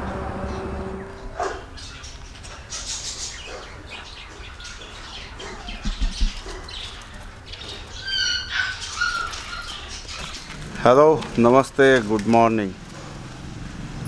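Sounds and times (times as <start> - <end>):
bird calling: 0.4 - 10.7.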